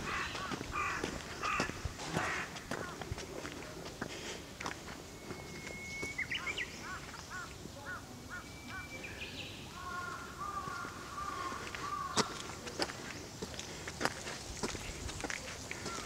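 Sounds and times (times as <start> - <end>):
birds singing whistled notes: 5.0 - 7.5, 8.3 - 9.8.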